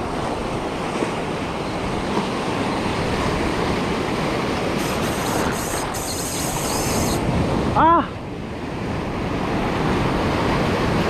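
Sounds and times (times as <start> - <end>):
surf breaking on shore: 0.0 - 8.2
wind rumbling on microphone: 0.0 - 11.0.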